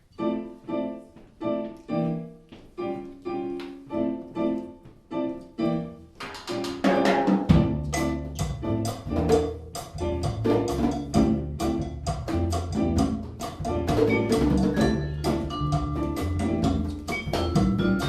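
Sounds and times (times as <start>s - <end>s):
piano chords: 0.0s - 18.0s
hand percussion: 6.2s - 18.0s
string bass: 7.5s - 18.0s.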